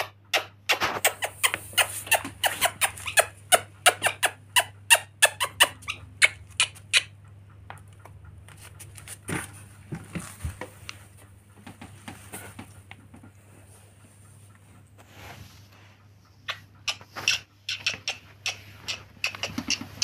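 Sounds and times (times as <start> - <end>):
parrot squeaky calls: 1.0 - 7.1.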